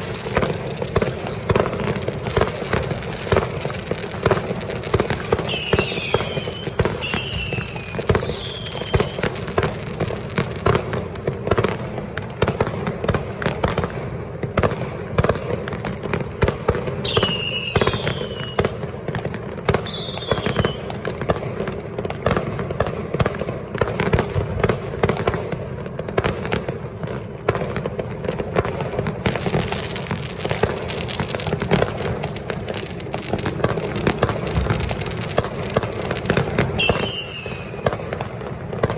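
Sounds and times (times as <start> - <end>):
firecrackers crackling: 0.0 - 38.9
falling firework whistles: 4.9 - 9.8, 17.0 - 18.9, 19.7 - 21.2, 34.1 - 38.9.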